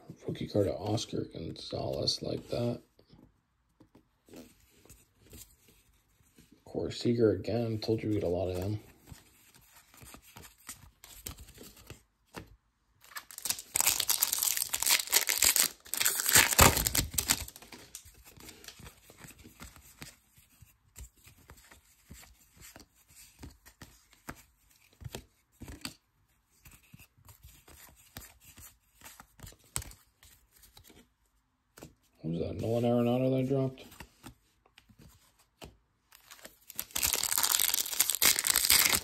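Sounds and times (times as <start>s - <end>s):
cards rustling: 7.8s - 31.1s, 33.6s - 39.0s
foil pack tearing and crinkling: 13.2s - 18.0s, 36.7s - 39.0s
soft clicks of cards handled: 17.7s - 31.1s, 31.7s - 32.0s, 33.8s - 36.5s.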